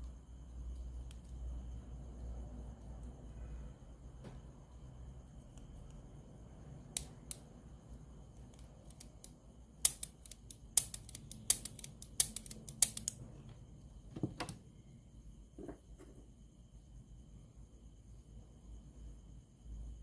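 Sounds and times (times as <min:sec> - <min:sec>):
sharp clicks: 0:08.4 - 0:13.2.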